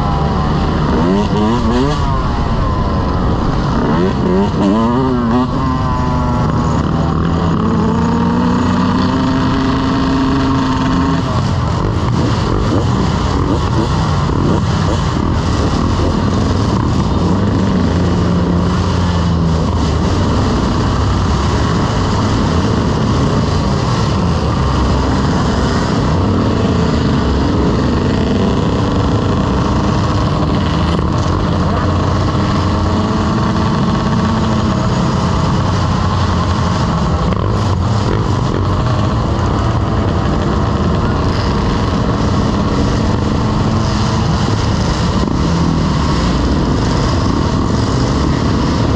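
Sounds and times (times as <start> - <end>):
motorcycle engine running: 0.0 - 48.9
road noise rushing: 0.0 - 48.9.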